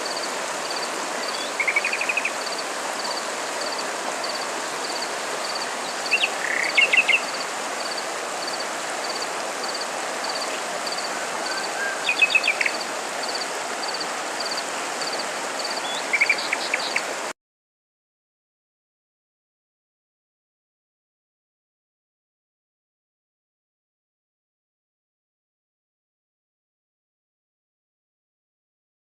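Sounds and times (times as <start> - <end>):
insect chirping: 0.0 - 17.2
constant hiss: 0.0 - 17.3
bird trilled song: 11.5 - 12.8, 15.8 - 17.0.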